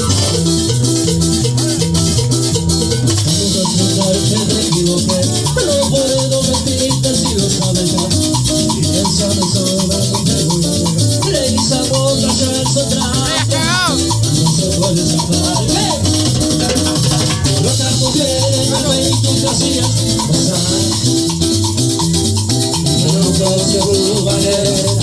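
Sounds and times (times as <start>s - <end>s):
bass line: 0.0s - 25.0s
repeated melodic figure: 13.0s - 14.3s
steady dance beat: 13.1s - 14.1s.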